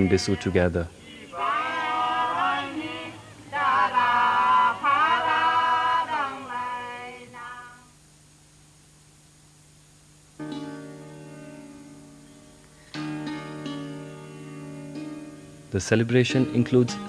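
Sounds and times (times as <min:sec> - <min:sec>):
people singing unaccompanied: 0:00.0 - 0:07.9.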